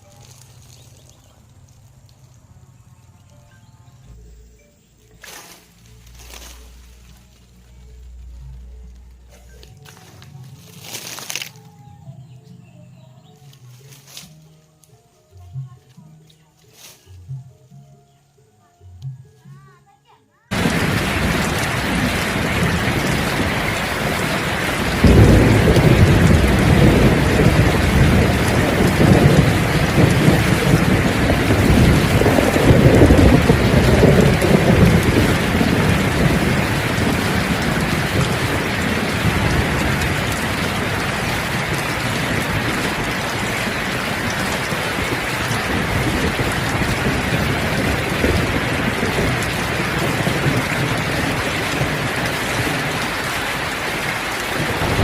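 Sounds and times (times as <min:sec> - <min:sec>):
heavy rain: 0:00.0 - 0:03.3, 0:05.3 - 0:11.6, 0:20.5 - 0:55.0
thunder rumbling: 0:20.5 - 0:55.0.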